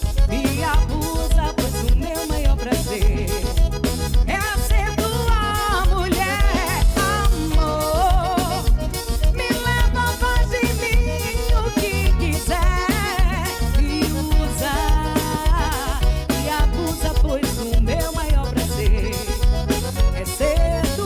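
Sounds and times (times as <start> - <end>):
live band music: 0.0 - 21.0.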